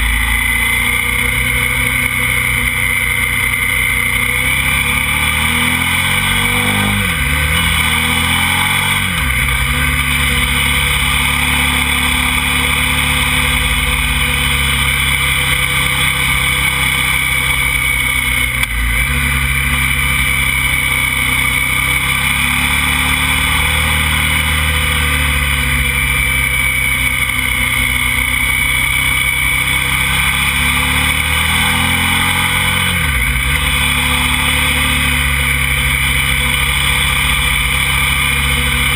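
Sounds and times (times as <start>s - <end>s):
motorcycle engine running: 0.0s - 38.9s
steady high whine: 0.0s - 38.9s.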